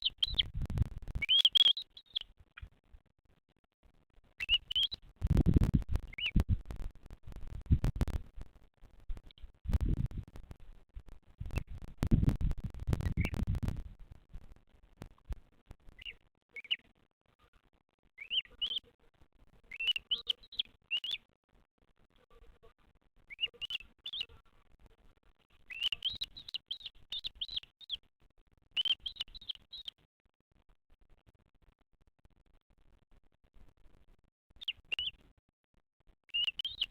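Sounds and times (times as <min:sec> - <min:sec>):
vulture chick chirping: 0:00.0 - 0:02.7, 0:04.4 - 0:05.0, 0:18.2 - 0:18.8, 0:19.7 - 0:21.2, 0:23.3 - 0:24.4, 0:25.7 - 0:28.0, 0:28.8 - 0:29.9, 0:34.6 - 0:35.2, 0:36.4 - 0:36.9
faint clicks: 0:04.4 - 0:16.8.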